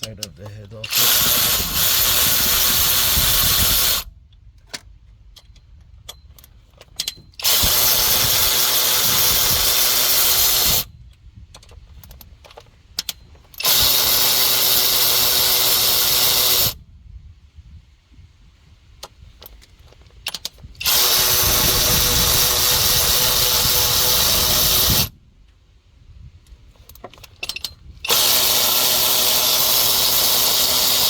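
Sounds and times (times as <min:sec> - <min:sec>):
handling clicks and knocks: 0:00.0 - 0:01.0
power tool running: 0:00.8 - 0:04.1, 0:07.4 - 0:10.9, 0:13.6 - 0:16.8, 0:20.8 - 0:25.1, 0:28.1 - 0:31.0.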